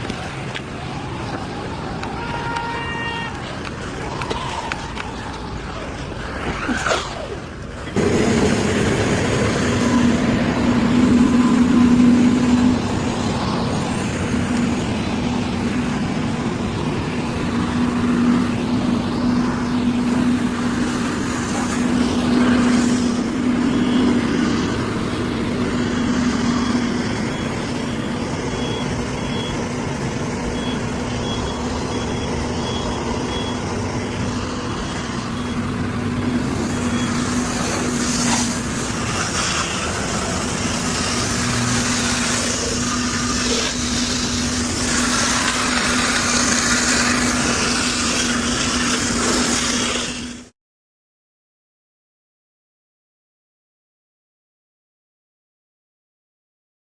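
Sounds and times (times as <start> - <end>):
truck engine running: 3.3 - 50.5
reversing alarm beeping: 19.2 - 39.1.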